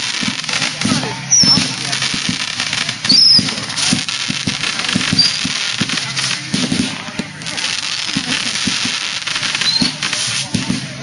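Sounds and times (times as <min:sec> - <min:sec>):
fireworks popping and crackling: 0:00.0 - 0:11.0
people's voices: 0:00.0 - 0:11.0.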